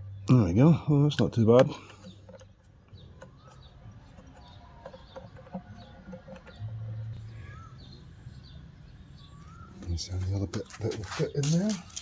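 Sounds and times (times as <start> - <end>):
faint bird chirps and calls: 1.8 - 12.0.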